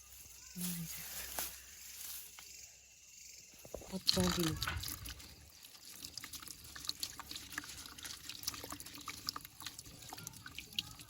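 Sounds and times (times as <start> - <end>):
water trickling and dripping: 3.6 - 11.0.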